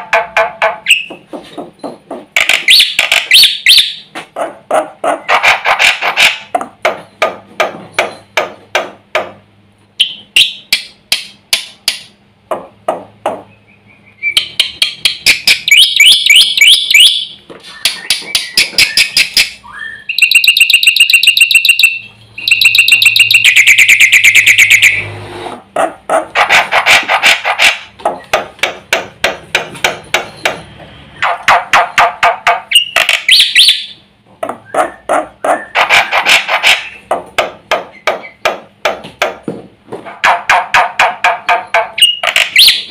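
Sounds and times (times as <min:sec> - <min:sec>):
bird chattering trills: 0:00.1 - 0:06.4, 0:13.5 - 0:25.1, 0:31.2 - 0:37.1, 0:40.2 - 0:42.9
bird singing sharp repeated notes: 0:01.8 - 0:04.1, 0:10.0 - 0:10.8, 0:13.5 - 0:25.1, 0:31.2 - 0:34.0, 0:40.8 - 0:42.9.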